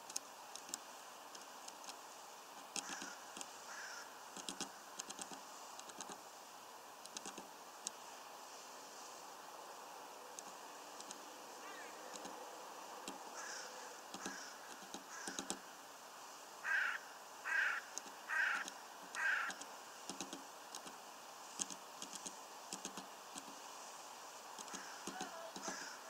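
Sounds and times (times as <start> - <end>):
light taps and clicks: 2.6 - 3.5, 4.4 - 6.2, 7.0 - 8.0, 14.1 - 15.6, 18.0 - 21.0, 24.6 - 25.9
short harsh bird calls: 11.6 - 12.1, 13.3 - 15.4, 16.6 - 19.6, 24.7 - 26.0
faint high bird chirps: 11.6 - 12.2.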